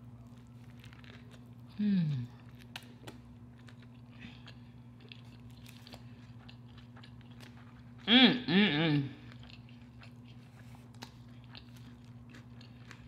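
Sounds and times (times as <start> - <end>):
steady low hum: 0.0 - 13.0
woman humming mmm: 1.7 - 2.4, 8.0 - 9.2.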